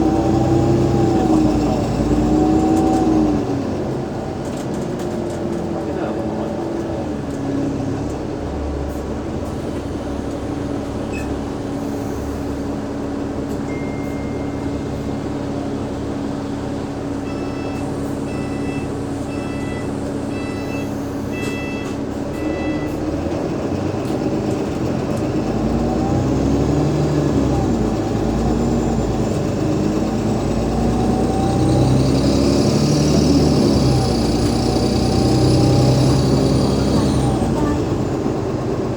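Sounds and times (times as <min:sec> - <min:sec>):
bus engine drone and rumble: 0:00.0 - 0:38.9
short electronic beeps: 0:13.7 - 0:14.8, 0:17.2 - 0:23.0.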